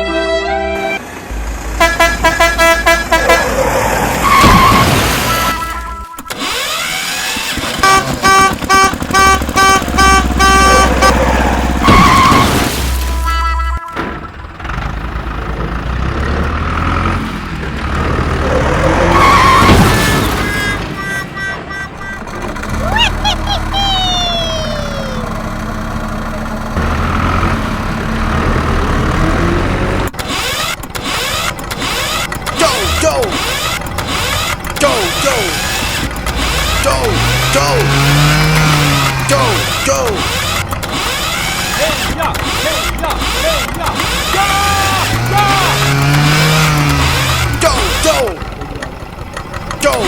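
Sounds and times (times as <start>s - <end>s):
vehicle engine rumble: 1.0s - 50.0s
horn honking quick beeps: 1.8s - 3.5s, 4.2s - 14.6s, 19.1s - 23.7s
tyre screech: 3.2s - 14.0s, 18.3s - 25.4s, 30.2s - 48.4s.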